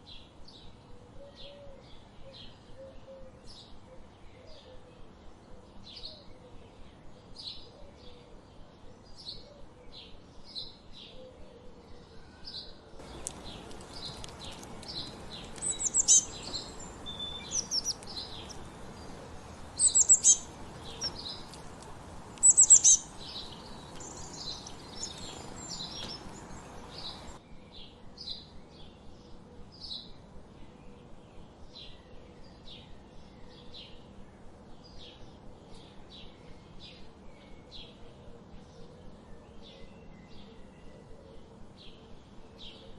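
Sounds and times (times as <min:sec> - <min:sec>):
bird chirping: 0:00.0 - 0:42.9
high-pitched birdsong phrases: 0:15.0 - 0:21.5, 0:22.4 - 0:27.4.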